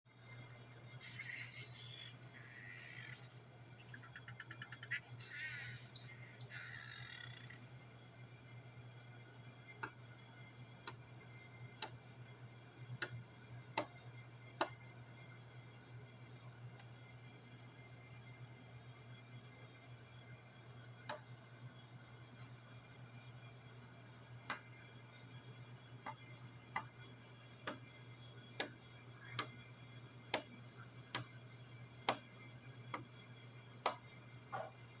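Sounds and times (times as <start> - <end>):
steady low hum: 0.1 - 35.0
songbird warbling and trilling: 1.0 - 7.6.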